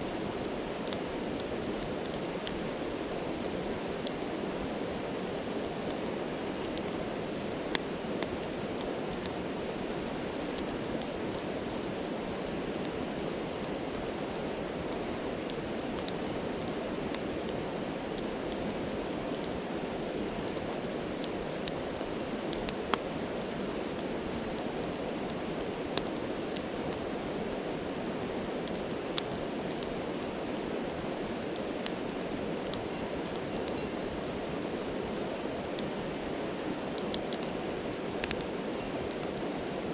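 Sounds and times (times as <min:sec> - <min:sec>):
stream rushing: 0:00.0 - 0:39.9
campfire pops: 0:10.3 - 0:11.5, 0:12.3 - 0:18.7, 0:19.3 - 0:33.8, 0:36.8 - 0:37.6, 0:38.2 - 0:39.4.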